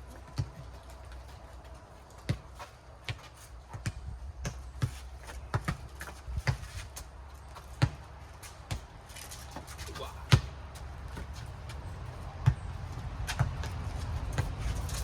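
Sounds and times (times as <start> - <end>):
ball being hit with sharp smacks: 2.2 - 14.6
rubber ball bouncing on hard court: 3.1 - 6.7, 7.6 - 8.1, 10.3 - 11.4.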